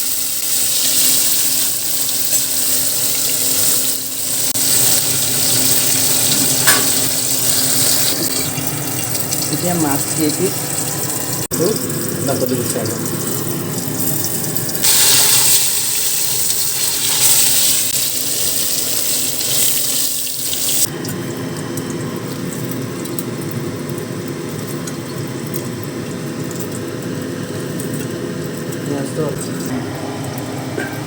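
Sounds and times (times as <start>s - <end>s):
kitchen tap running: 0.0s - 23.2s.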